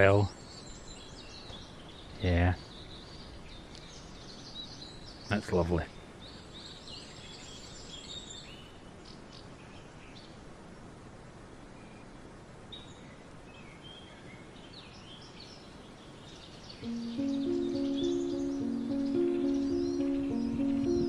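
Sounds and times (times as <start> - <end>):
small birds chirping: 0.0 - 9.5, 13.8 - 21.0
steady outdoor hiss: 0.0 - 21.0.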